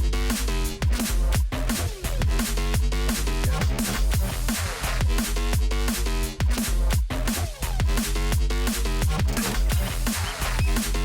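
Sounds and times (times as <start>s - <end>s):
electronic dance music: 9.2s - 11.0s.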